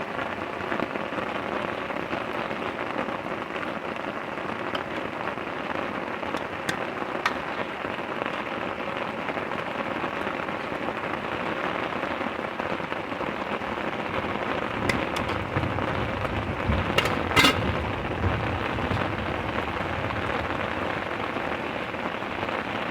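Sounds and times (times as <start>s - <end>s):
heavy rain pattering: 0.0s - 22.9s
sharp knocks: 14.2s - 20.8s
low rumble: 14.2s - 21.4s.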